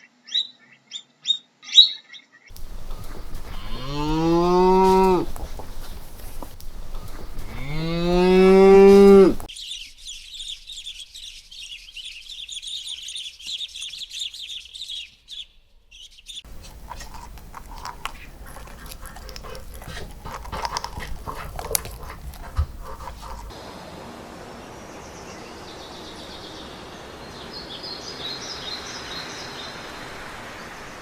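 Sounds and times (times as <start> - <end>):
cow mooing: 2.6 - 9.5.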